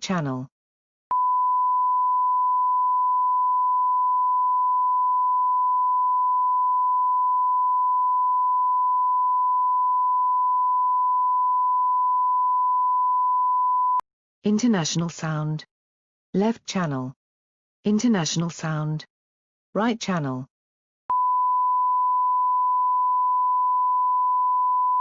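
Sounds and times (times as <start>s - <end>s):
sine wave test tone: 1.1s - 14.0s, 21.1s - 25.0s.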